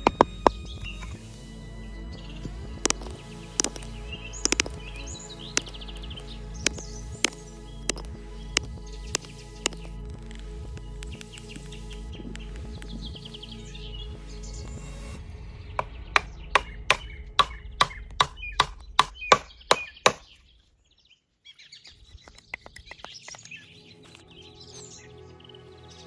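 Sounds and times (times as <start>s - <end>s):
chopping strikes on wood: 0.0s - 1.2s, 2.8s - 5.0s, 15.8s - 20.3s
light taps: 0.0s - 1.2s, 2.8s - 9.9s
birds chirping: 0.0s - 15.1s, 15.8s - 26.0s
background music: 0.0s - 20.2s, 23.6s - 26.0s.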